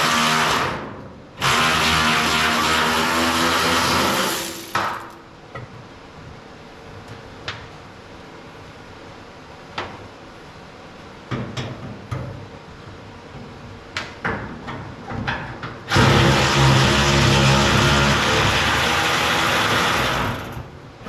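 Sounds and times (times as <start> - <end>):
motor-driven machine running: 1.4 - 5.2, 15.9 - 20.6.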